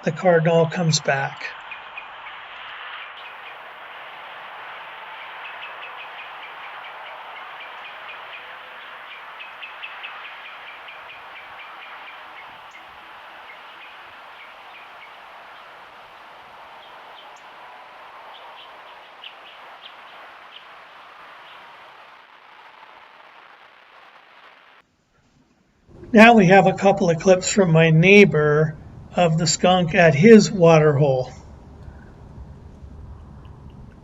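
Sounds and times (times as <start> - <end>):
small birds chirping: 0.0 - 22.8
steady hiss: 0.0 - 34.0.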